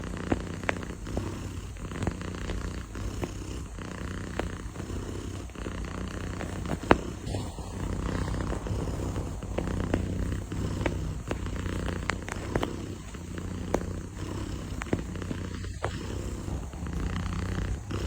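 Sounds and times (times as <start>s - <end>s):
cat purring: 0.0s - 18.0s
sharp tap: 6.3s - 18.0s.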